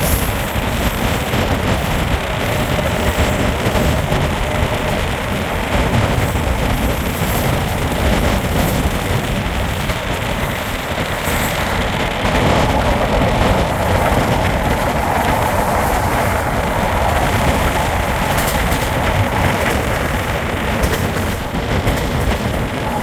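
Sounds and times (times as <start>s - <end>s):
train wheels rumbling on board: 0.0s - 23.0s.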